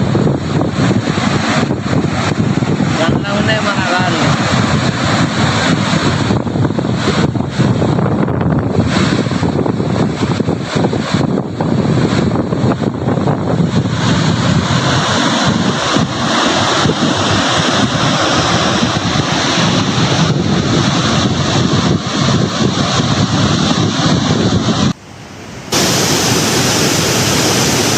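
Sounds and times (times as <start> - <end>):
water rushing over rocks: 25.5 - 27.9.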